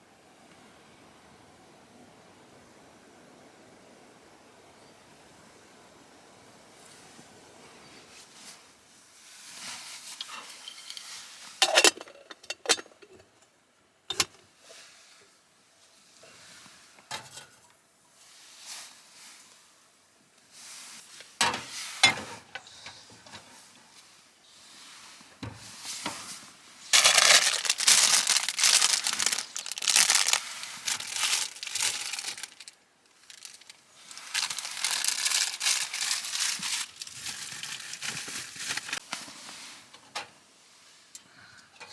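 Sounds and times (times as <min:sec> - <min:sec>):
crinkling and rustling: 0:25.4 - 0:40.3.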